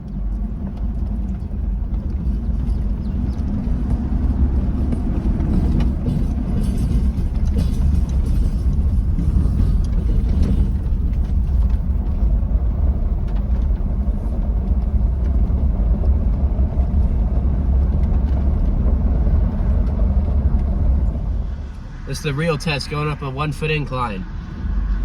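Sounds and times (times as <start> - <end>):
engine running rough: 0.0 - 25.0.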